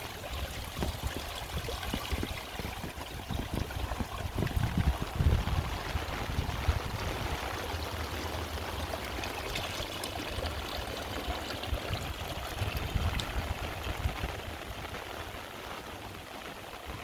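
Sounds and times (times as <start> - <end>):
heavy rain falling: 3.9 - 9.1, 12.2 - 17.0.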